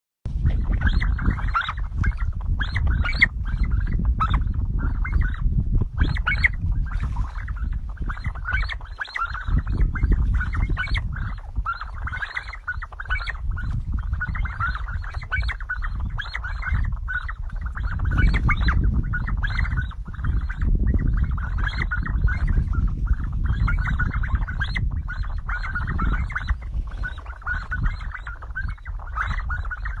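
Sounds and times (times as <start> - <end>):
steady low rumble: 0.3 - 30.0
flock of birds calling: 0.4 - 30.0.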